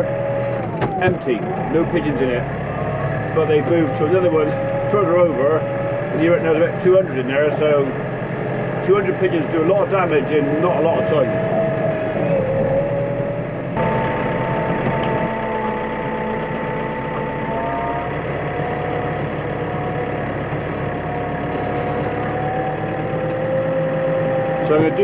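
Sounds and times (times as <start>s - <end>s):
tractor engine running: 0.0s - 25.0s
high whine: 10.8s - 25.0s.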